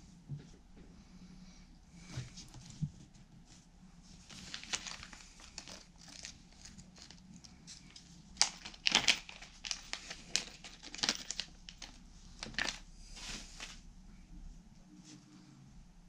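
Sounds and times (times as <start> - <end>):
packaging crinkling: 4.3 - 13.8.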